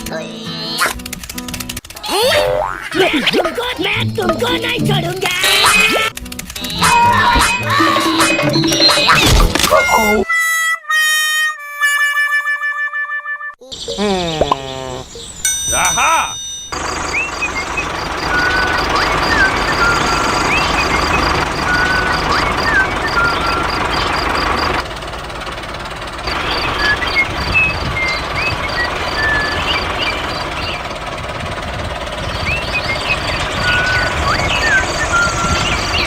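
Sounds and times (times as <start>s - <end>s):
rapid high-pitched electronic beeps: 16.8s - 24.8s.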